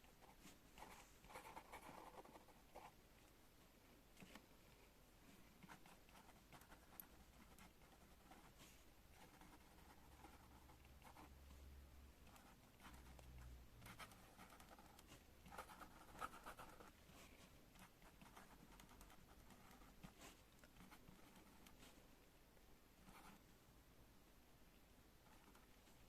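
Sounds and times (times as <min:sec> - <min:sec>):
pen scratching on paper: 0:00.1 - 0:02.9, 0:05.6 - 0:11.3, 0:12.2 - 0:17.0, 0:17.8 - 0:21.8.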